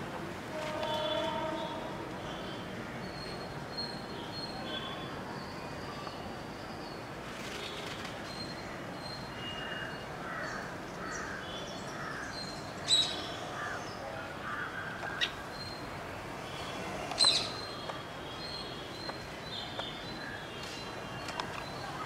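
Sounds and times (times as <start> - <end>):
birds chirping: 17.1 - 22.0.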